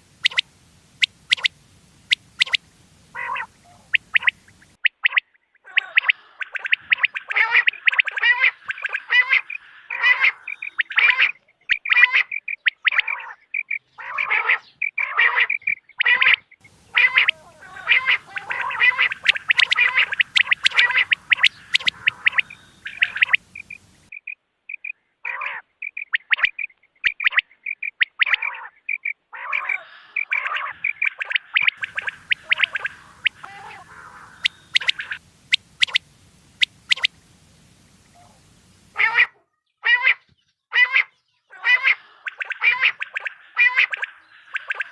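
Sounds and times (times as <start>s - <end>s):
quail calls: 0.2s - 44.9s
short high pips: 16.7s - 24.1s, 30.6s - 39.3s.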